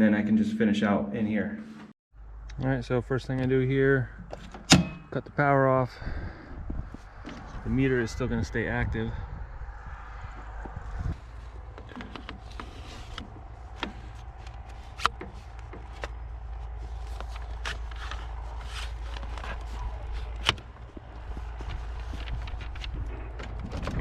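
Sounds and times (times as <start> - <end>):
steady low rumble: 0.5 - 24.0
clicks and knocks of handling gear: 10.6 - 24.0.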